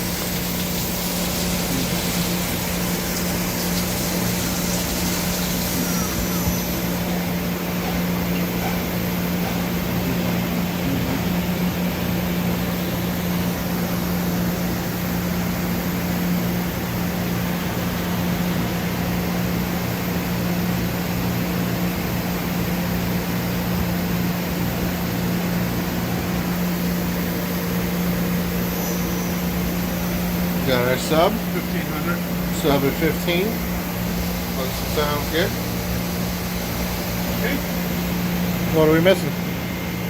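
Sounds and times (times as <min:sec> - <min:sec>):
machine spindle humming: 0:00.0 - 0:17.4.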